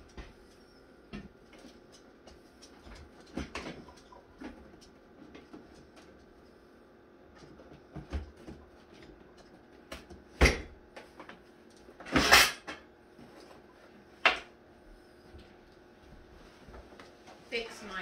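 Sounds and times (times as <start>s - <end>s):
objects knocking and clunking: 1.1s - 6.2s.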